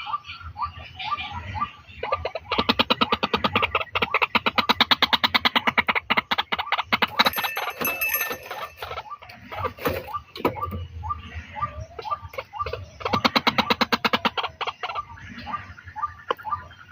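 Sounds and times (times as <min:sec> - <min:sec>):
waterhen calling: 0:00.0 - 0:16.9.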